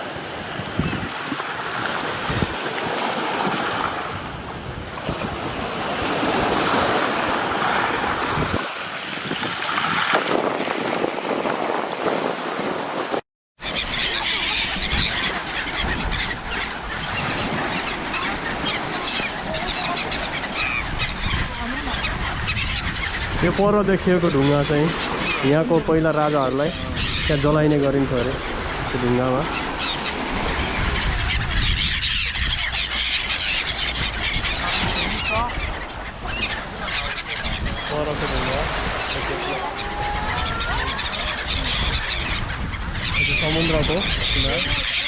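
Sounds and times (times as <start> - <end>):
sea washing: 0.0 - 13.2
sea surf: 0.0 - 21.0, 32.7 - 45.0
seabirds calling: 0.0 - 45.0
wind: 0.0 - 45.0
birds squealing: 0.5 - 4.2, 13.6 - 45.0.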